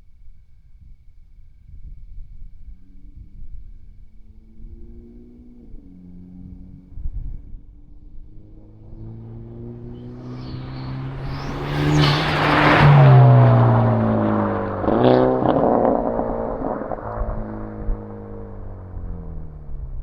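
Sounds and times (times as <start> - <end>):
car engine accelerating hard: 4.2 - 20.0.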